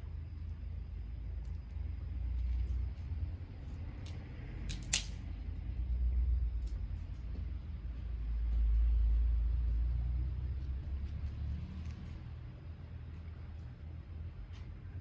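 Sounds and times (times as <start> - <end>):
steady low rumble: 0.0 - 15.0
sharp pops of fire: 4.0 - 5.3.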